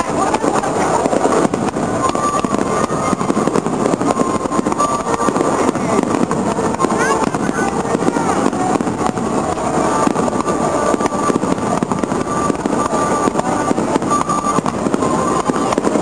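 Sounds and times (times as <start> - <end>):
fireworks bangs and crackling: 0.0 - 16.0
voices: 0.0 - 16.0.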